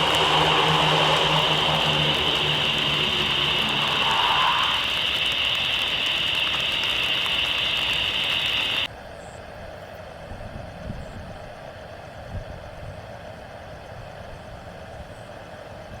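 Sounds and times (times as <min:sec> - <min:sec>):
engine hum: 0:00.0 - 0:08.9
aircraft engine high whine: 0:00.0 - 0:09.4.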